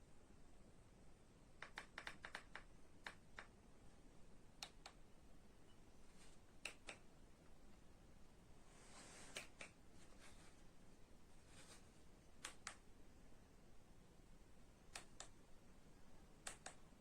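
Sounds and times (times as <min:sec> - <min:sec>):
faint clicks: 0:01.6 - 0:03.6, 0:04.6 - 0:05.0, 0:06.6 - 0:07.1, 0:09.2 - 0:09.8, 0:12.4 - 0:12.9, 0:14.9 - 0:15.4, 0:16.4 - 0:16.8.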